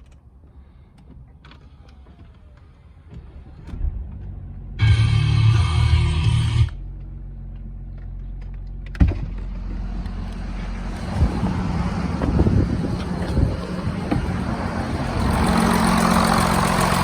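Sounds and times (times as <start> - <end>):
diesel engine running: 3.8 - 17.0
engine ticking knocks: 7.0 - 17.0.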